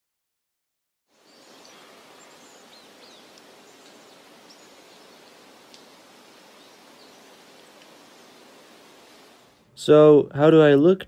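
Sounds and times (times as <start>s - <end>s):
birds chirping faintly: 1.1s - 9.7s
soft hiss of open air: 1.1s - 11.0s.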